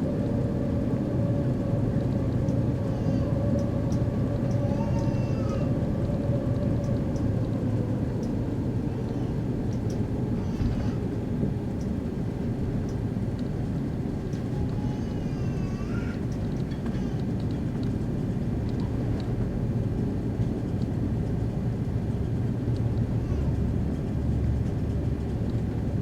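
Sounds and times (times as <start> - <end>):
airplane cabin rumble: 0.0 - 26.0
faint squeaky glides: 2.5 - 9.6
light ticks: 3.5 - 10.1, 11.8 - 12.0, 12.8 - 15.3, 16.1 - 19.5, 23.8 - 25.8.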